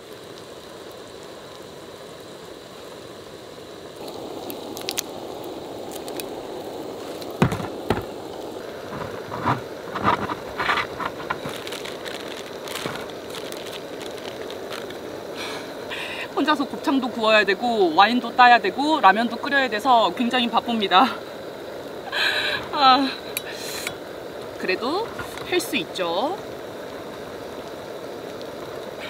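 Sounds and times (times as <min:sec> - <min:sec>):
background hiss: 0:00.0 - 0:29.0
bottle knocking on plastic: 0:07.4 - 0:08.1
corkscrew clicks and scrapes: 0:08.9 - 0:13.4.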